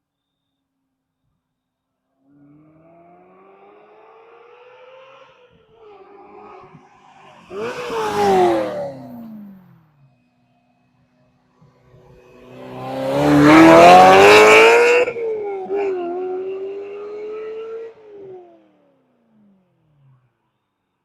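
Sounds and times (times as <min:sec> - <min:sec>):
car engine accelerating hard: 0:02.4 - 0:10.2, 0:11.6 - 0:20.3.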